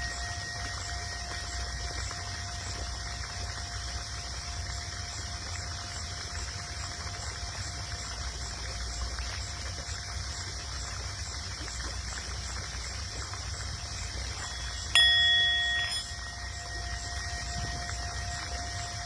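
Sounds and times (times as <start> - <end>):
singing bowl struck: 0.0 - 2.8, 14.3 - 19.0
singing bowl ringing: 0.0 - 4.2, 14.1 - 19.0.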